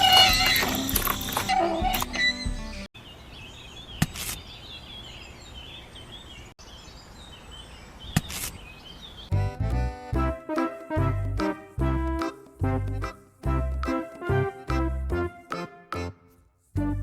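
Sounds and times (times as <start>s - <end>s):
music: 0.0s - 2.9s, 9.3s - 17.0s
birds chirping: 0.0s - 16.2s.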